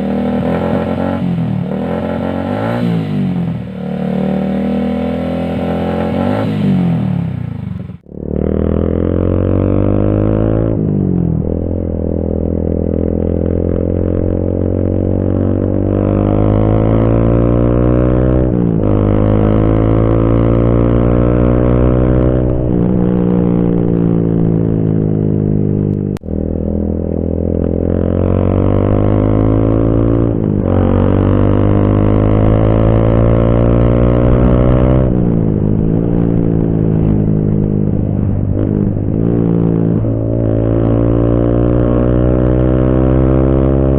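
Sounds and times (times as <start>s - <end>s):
motorcycle engine idling and revving: 0.0s - 43.9s.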